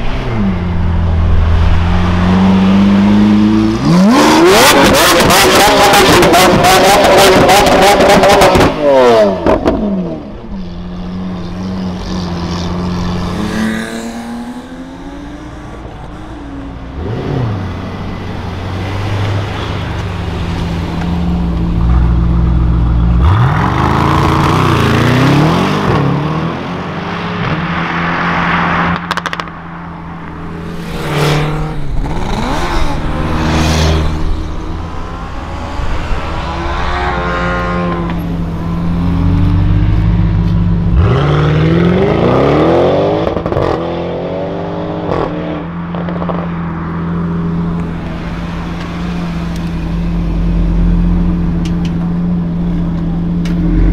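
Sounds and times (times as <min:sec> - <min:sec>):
car engine revving and accelerating: 0:00.0 - 0:29.5, 0:30.4 - 0:53.9
car engines idling: 0:09.4 - 0:23.5, 0:46.7 - 0:53.9
deep rumbling engine accelerating: 0:30.1 - 0:44.4, 0:47.4 - 0:53.9.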